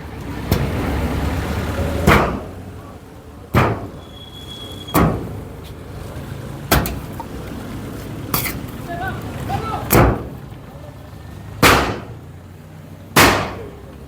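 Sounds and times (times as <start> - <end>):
loud bangs: 2.0 - 2.7, 3.5 - 4.0, 4.9 - 5.5, 9.9 - 10.4, 11.6 - 12.3, 13.1 - 13.9.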